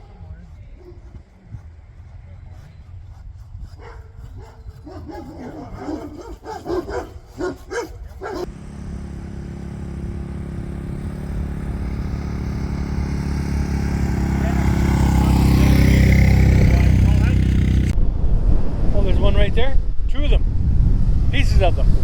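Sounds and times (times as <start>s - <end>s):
vehicle engine running: 8.4s - 18.0s.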